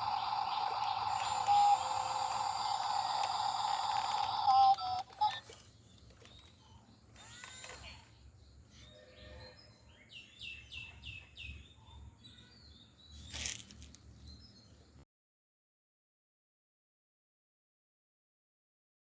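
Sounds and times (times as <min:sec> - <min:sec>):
bird chirps: 0:00.0 - 0:13.5.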